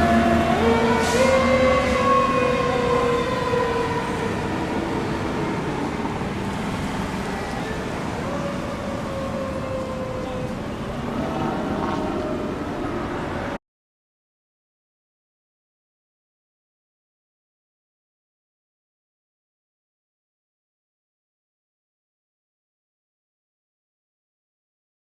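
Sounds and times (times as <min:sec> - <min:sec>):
fire engine siren wailing: 0:00.0 - 0:13.6
road and engine noise: 0:00.0 - 0:13.6.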